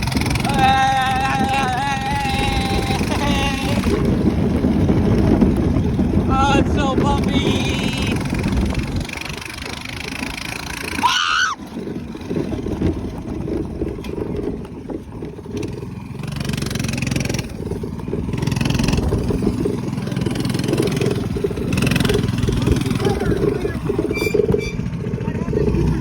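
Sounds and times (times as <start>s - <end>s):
small engine rumbling: 0.0s - 26.0s
rising squeal: 23.1s - 25.1s.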